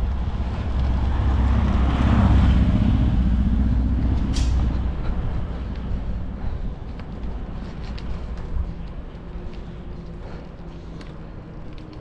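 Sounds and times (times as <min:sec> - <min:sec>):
car passing by: 0:00.0 - 0:06.4.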